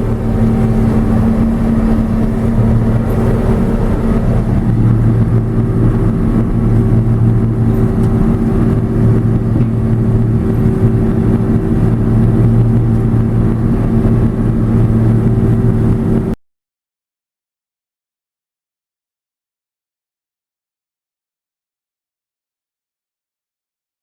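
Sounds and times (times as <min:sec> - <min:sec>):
combine harvester engine droning: 0:00.0 - 0:16.4.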